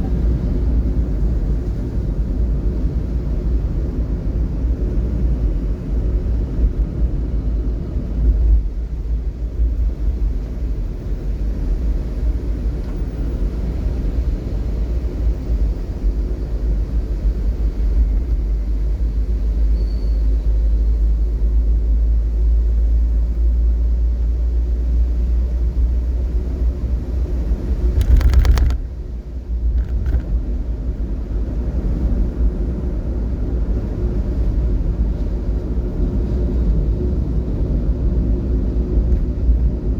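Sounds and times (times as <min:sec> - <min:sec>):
vehicle low rumble: 0:00.0 - 0:39.9.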